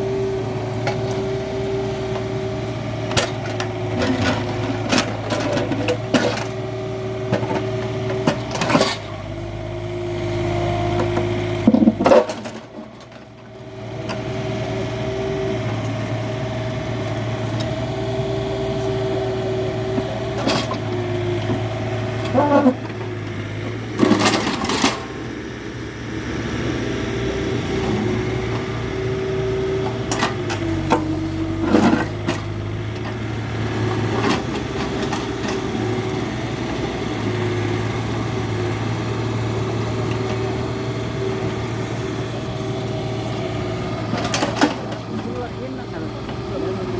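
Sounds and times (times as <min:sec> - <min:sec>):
diesel engine running: 0:00.0 - 0:46.9
digging knocks and scrapes: 0:07.3 - 0:09.2
hydraulic whine: 0:13.9 - 0:46.9.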